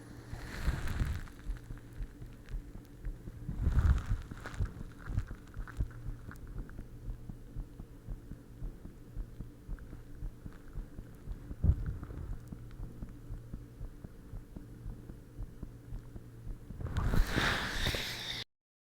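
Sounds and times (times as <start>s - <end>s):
low hum: 0.0s - 18.5s
heartbeat thumps: 0.6s - 17.4s
rough noise: 16.8s - 18.5s.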